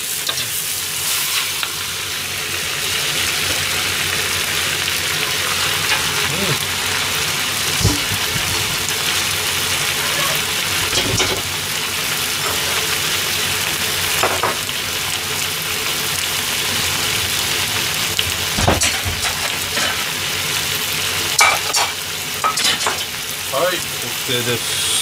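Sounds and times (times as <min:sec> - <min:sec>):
food sizzling in a wok: 0:00.0 - 0:25.0
short knocks: 0:07.8 - 0:08.9.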